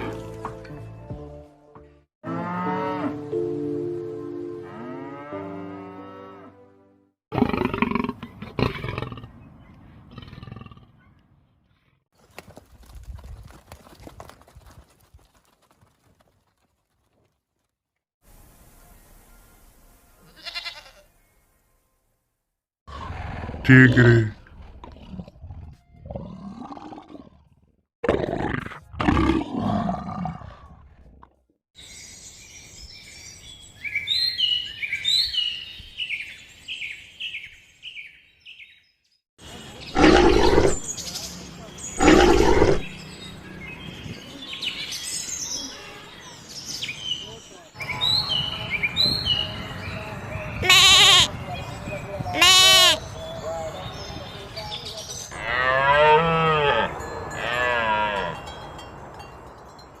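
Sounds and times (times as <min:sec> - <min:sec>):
farm animal bleating: 0:20.2 - 0:21.1, 0:50.6 - 0:51.4, 0:52.3 - 0:53.0
songbird chirping: 0:31.8 - 0:55.8.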